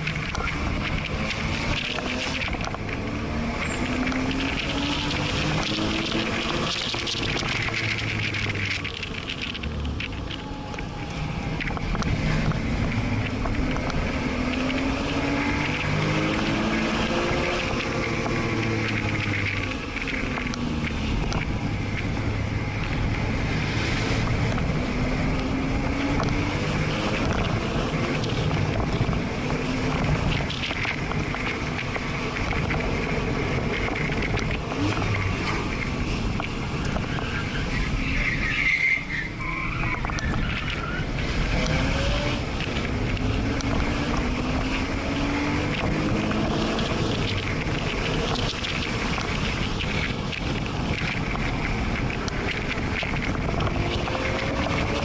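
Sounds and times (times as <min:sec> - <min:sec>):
car engine revving: 0:00.0 - 0:55.0
tyre squeal: 0:03.6 - 0:06.4, 0:37.0 - 0:41.2.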